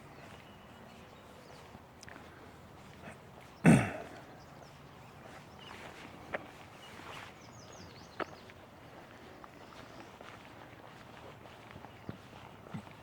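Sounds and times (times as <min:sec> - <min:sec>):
footsteps on path: 0:05.2 - 0:13.0.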